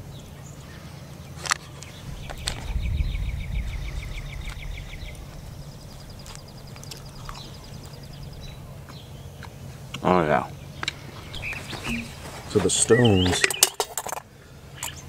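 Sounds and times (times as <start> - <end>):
small birds trilling: 0.0 - 15.0
low rumble: 1.9 - 12.4.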